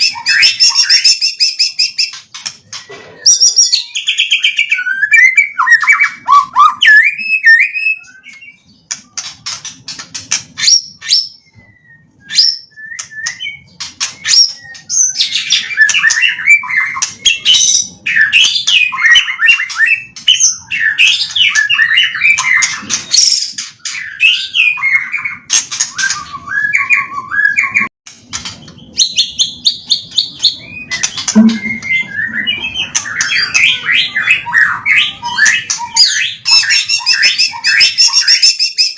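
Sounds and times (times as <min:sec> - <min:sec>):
bird singing whistled trills: 0:00.0 - 0:09.6, 0:10.6 - 0:27.9, 0:28.7 - 0:38.9.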